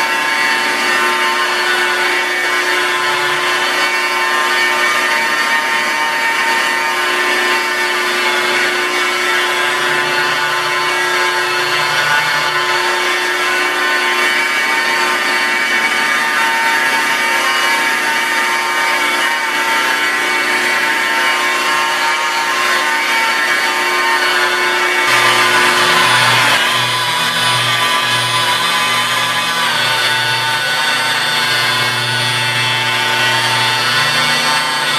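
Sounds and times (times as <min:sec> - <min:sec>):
rotary polisher motor whine: 0:00.0 - 0:34.9
polishing pad rubbing: 0:25.0 - 0:34.9.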